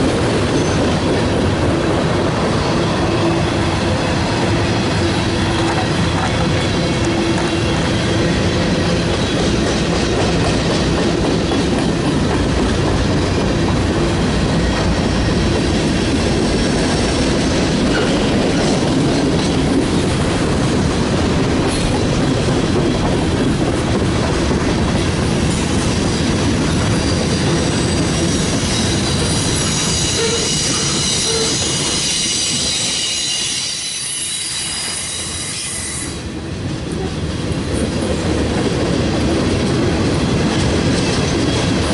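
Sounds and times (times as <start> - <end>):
railroad wheels rumbling on track: 0.0 - 41.9
high-pitched wheel squeal: 27.0 - 36.2.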